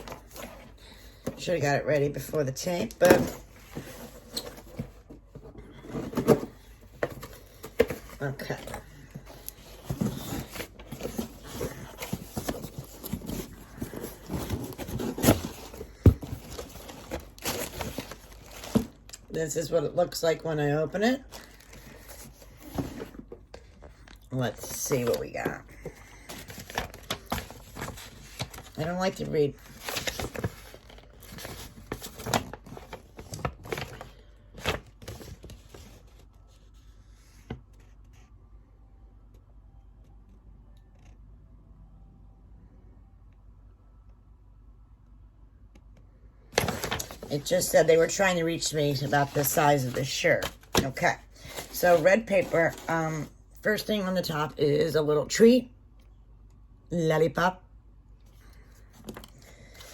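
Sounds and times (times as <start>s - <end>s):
cardboard box being opened: 3.0s - 19.0s, 29.6s - 36.0s, 46.6s - 47.7s, 49.3s - 52.9s
paper rustling and crinkling: 3.2s - 19.2s, 21.2s - 38.1s, 46.5s - 53.3s.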